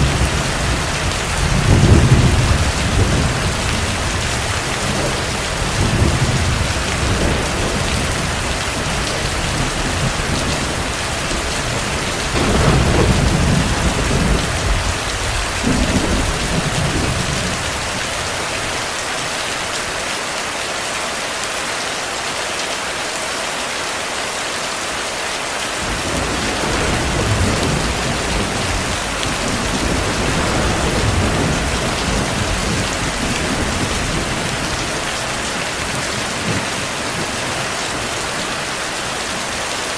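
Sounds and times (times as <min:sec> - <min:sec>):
distant thunder rumbling: 0:00.0 - 0:18.8, 0:25.8 - 0:38.8
heavy rain falling: 0:00.0 - 0:39.9.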